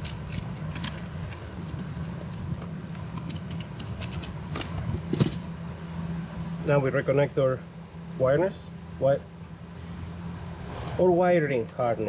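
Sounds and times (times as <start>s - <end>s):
ratchet clicking: 0.0s - 4.4s
steady low hum: 0.0s - 12.0s.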